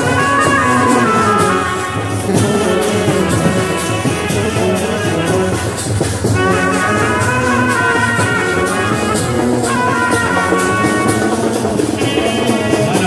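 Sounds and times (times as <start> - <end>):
band music: 0.0 - 13.0
drums on a steady beat: 0.0 - 13.0.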